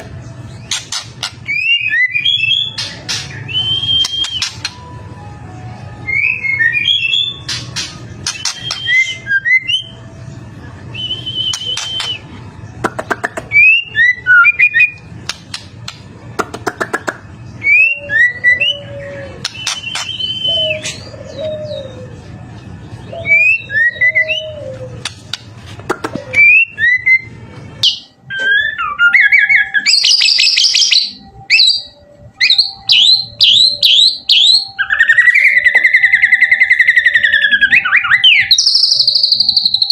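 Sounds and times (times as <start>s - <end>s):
bird singing whistles and trills: 0.4s - 4.8s, 5.9s - 10.0s, 10.8s - 12.4s, 17.6s - 22.2s, 22.9s - 25.4s, 26.3s - 39.9s.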